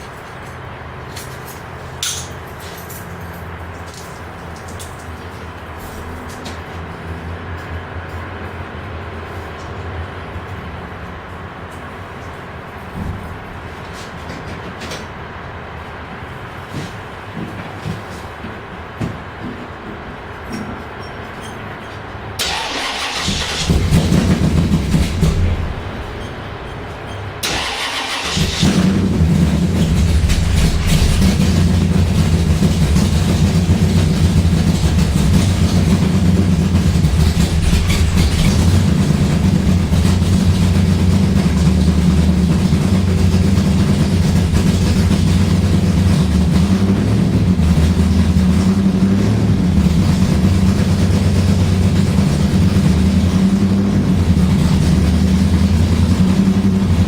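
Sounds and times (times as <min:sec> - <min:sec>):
car engine starting and idling: 0:22.4 - 0:57.0.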